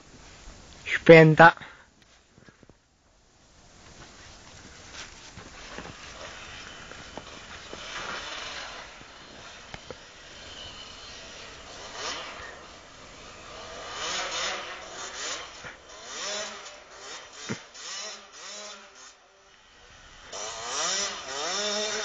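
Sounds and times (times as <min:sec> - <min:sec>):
motocross bike engine revving: 0:05.5 - 0:22.0.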